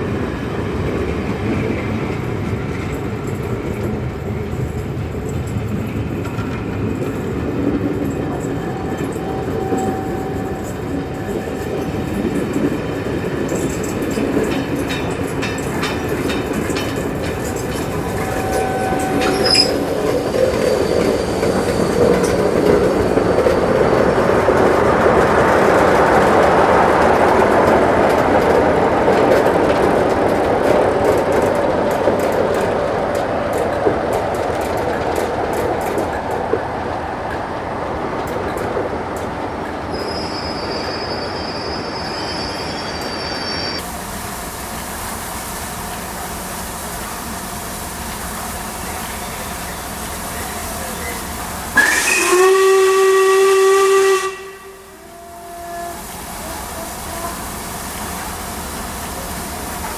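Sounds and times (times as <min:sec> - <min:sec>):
train rumbling: 0:00.0 - 0:59.9
wheels clicking over rail joints: 0:00.1 - 0:40.3, 0:43.8 - 0:53.3
thin wheel squeals: 0:08.3 - 0:12.2, 0:17.4 - 0:24.4, 0:39.9 - 0:43.8.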